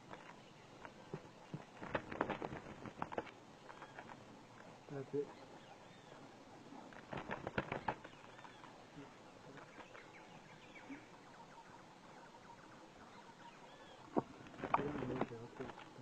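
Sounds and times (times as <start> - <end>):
bird chirping: 3.6 - 16.0.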